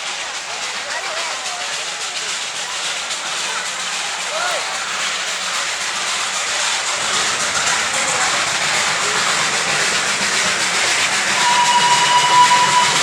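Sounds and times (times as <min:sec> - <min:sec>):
toy train running past: 0:00.0 - 0:13.0
high whistle tone: 0:11.3 - 0:13.0.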